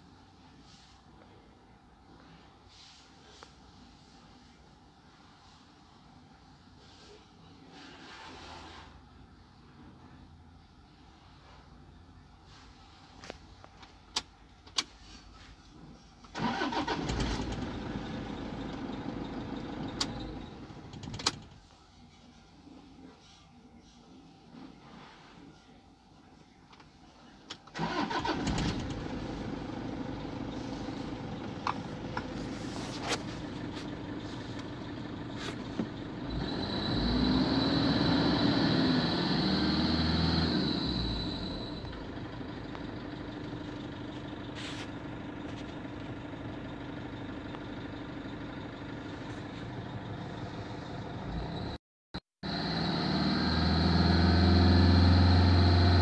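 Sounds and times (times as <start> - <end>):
car engine revving: 36.2 - 42.1, 52.4 - 56.0.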